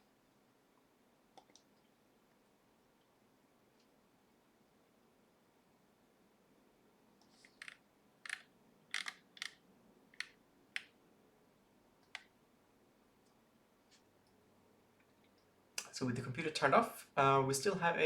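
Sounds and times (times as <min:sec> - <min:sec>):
sharp clicks: 0:07.2 - 0:09.6.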